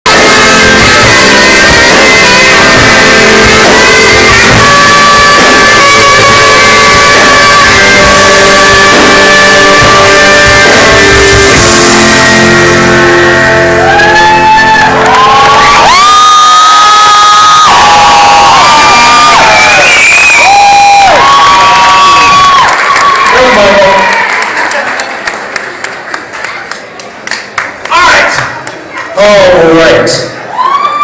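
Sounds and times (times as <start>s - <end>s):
live rock band playing: 0.1s - 19.4s
electric guitar: 0.1s - 20.0s.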